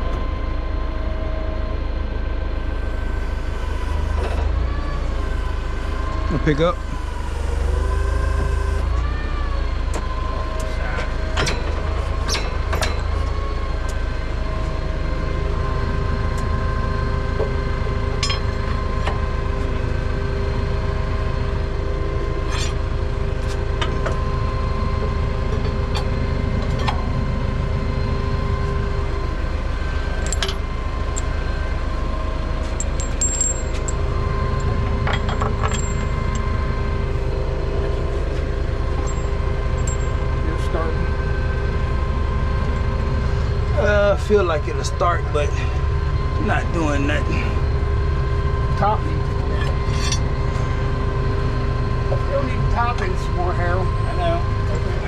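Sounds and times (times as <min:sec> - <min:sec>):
diesel engine running: 0:00.0 - 0:55.0
engine whine: 0:00.0 - 0:55.0
metal clinks and clanks: 0:18.2 - 0:18.5, 0:32.8 - 0:34.0, 0:35.0 - 0:36.4, 0:39.0 - 0:40.2, 0:49.4 - 0:50.3.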